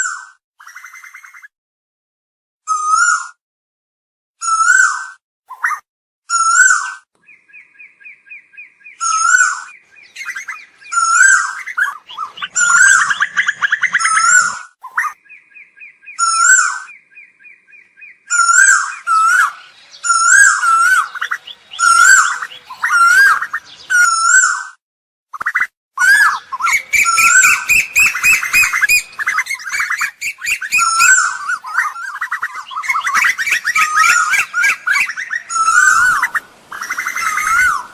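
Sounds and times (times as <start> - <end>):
koel calling: 7.8 - 15.4, 16.1 - 24.6, 25.6 - 37.9.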